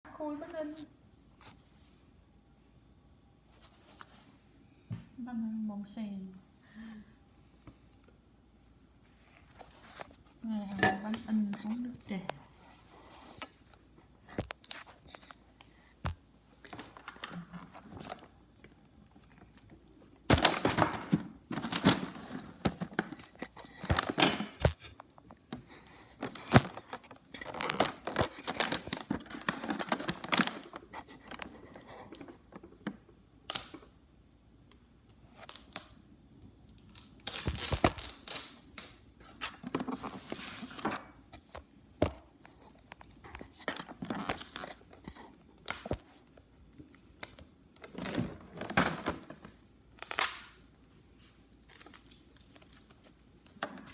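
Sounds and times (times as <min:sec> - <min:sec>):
wrapping crinkling and tearing: 0:21.5 - 0:32.5, 0:36.7 - 0:39.6, 0:49.8 - 0:53.6.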